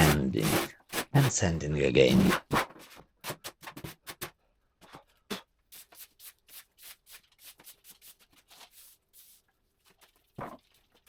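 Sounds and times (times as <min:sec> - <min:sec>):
sandpaper rubbing on a board: 0:00.0 - 0:01.5.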